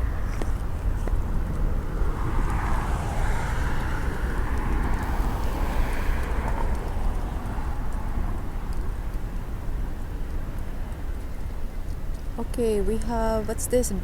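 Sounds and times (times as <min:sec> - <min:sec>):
heavy low rumble: 0:00.0 - 0:10.0
jet airliner engine roar: 0:00.0 - 0:12.0.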